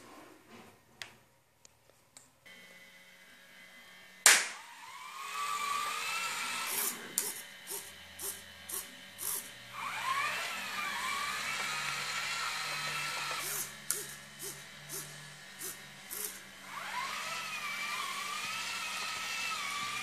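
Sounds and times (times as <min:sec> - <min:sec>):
hand clap: 0:04.3 - 0:04.6
robot drive motors whining: 0:04.6 - 0:20.0.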